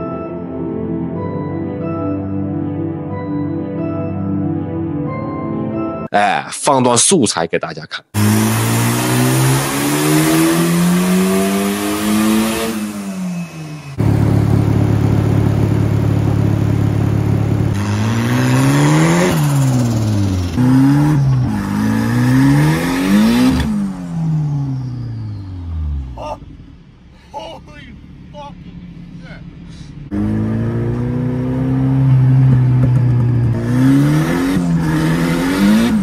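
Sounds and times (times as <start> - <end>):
car engine revving hard: 8.2 - 26.2, 29.1 - 36.0.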